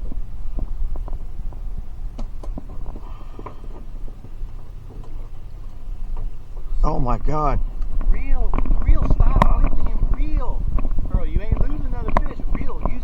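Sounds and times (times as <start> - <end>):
light knocks and clicks: 0.0 - 6.8
boat engine droning: 0.0 - 13.0.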